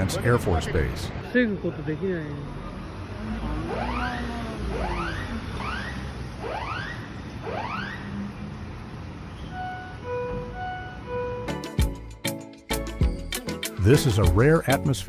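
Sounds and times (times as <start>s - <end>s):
whooping warning alarm: 3.4s - 8.3s
held musical notes: 9.6s - 15.0s.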